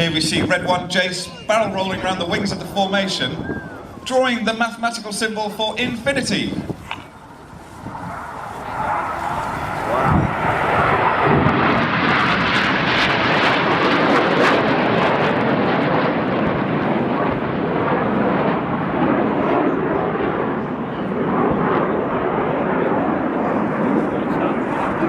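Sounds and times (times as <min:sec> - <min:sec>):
jet aircraft flying past: 0:00.0 - 0:25.0.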